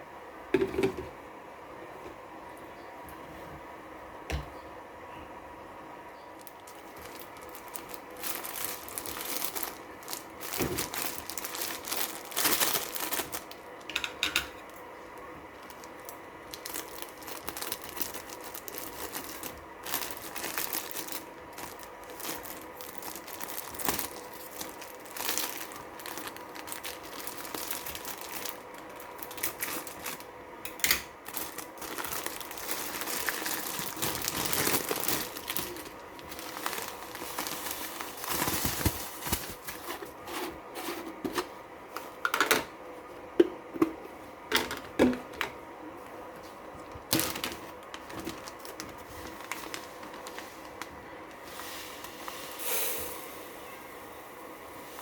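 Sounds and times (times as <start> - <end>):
plastic packaging crinkling: 6.4 - 30.4, 31.0 - 40.9, 46.4 - 52.6.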